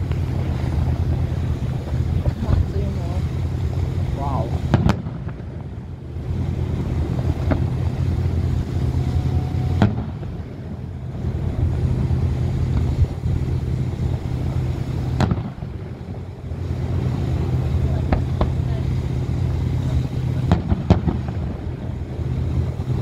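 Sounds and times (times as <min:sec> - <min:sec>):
steady low rumble: 0:00.0 - 0:23.0
fireworks cracking and banging: 0:04.3 - 0:06.4, 0:07.0 - 0:11.1, 0:15.1 - 0:16.0, 0:17.6 - 0:22.0.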